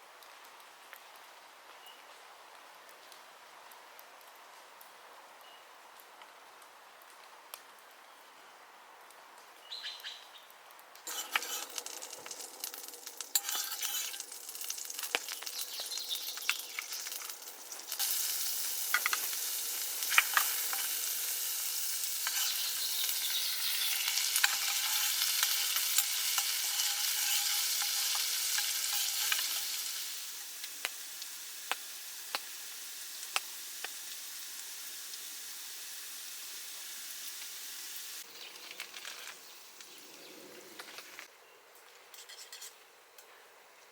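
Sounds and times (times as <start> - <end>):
food sizzling in a pan: 11.1 - 38.3.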